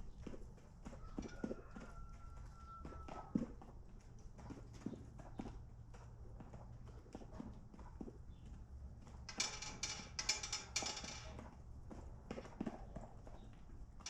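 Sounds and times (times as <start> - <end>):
chickens pecking taps: 0.1 - 9.2.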